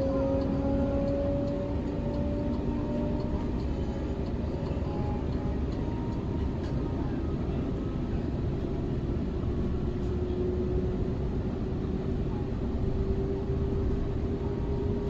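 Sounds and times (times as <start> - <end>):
faint train whine: 0.0 - 15.0
train wheels rumbling on track: 0.0 - 15.0.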